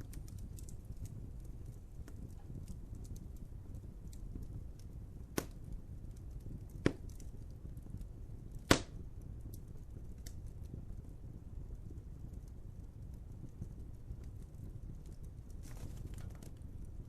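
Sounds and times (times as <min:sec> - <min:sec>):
wood fire crackling: 0:00.0 - 0:17.0
sharp pops: 0:05.4 - 0:05.6, 0:06.8 - 0:07.2, 0:08.6 - 0:09.0.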